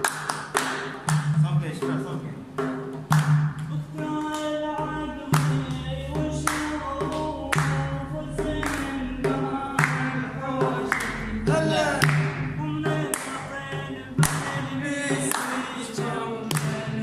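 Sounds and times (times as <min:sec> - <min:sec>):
drum strokes: 0:00.0 - 0:17.0
person singing sustained notes: 0:05.9 - 0:14.2.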